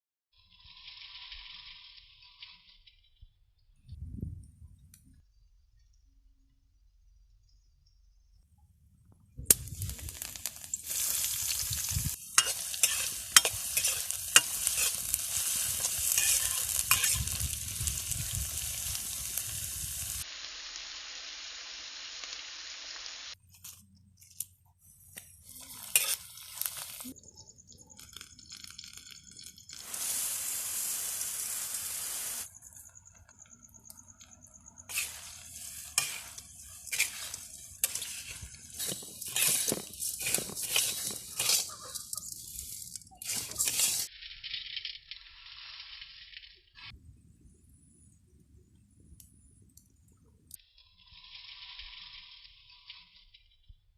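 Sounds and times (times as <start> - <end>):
puffed rice crackling in a hot pan: 0.4 - 2.9, 9.5 - 24.4, 25.0 - 33.2, 34.0 - 47.0, 50.6 - 53.4.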